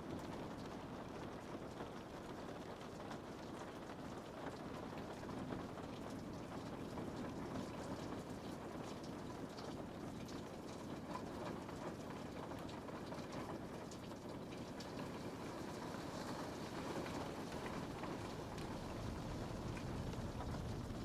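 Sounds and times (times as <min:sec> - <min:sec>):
rain pattering on window: 0:00.0 - 0:21.0.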